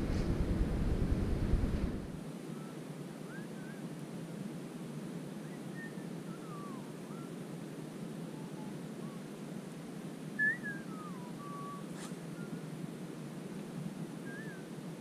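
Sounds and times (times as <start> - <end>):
birds whistling calls: 2.5 - 3.8, 5.4 - 7.4, 8.2 - 9.3, 10.4 - 12.7, 14.2 - 14.8.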